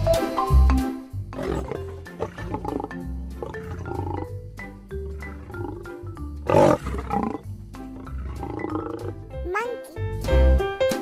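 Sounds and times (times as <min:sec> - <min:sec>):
background music: 0:00.0 - 0:11.0
lion roaring: 0:01.3 - 0:04.4, 0:05.0 - 0:09.2.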